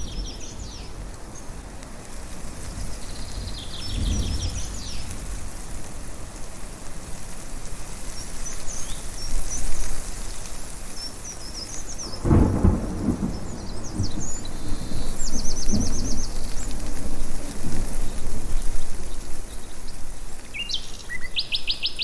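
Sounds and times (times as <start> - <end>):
birds chirping: 0.0 - 1.8, 10.9 - 16.9
rushing storm noise: 0.0 - 21.3
thunder rumbling: 2.6 - 6.1, 12.0 - 19.6.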